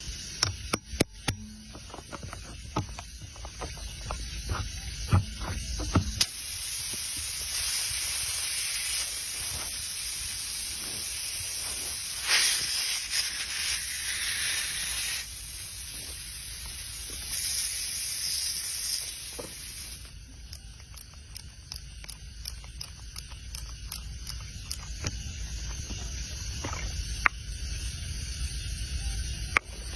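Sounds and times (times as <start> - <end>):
air hissing from tyre: 3.8 - 20.2.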